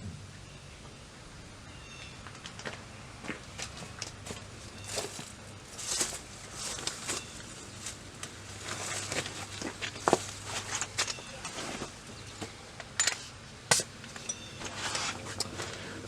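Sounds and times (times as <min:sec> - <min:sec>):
hand tools clicking and clinking: 0:12.8 - 0:14.7.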